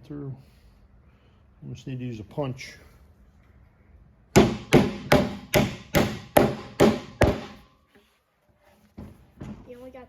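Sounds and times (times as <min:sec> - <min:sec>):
hammer striking metal punch: 0:04.3 - 0:07.6.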